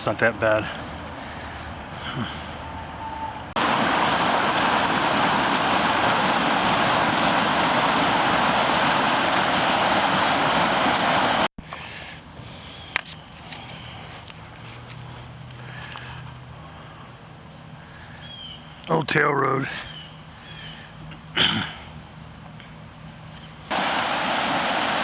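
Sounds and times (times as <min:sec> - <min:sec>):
outdoor background noise: 0:00.0 - 0:25.0
floodwater rushing: 0:03.6 - 0:11.5, 0:23.7 - 0:25.0.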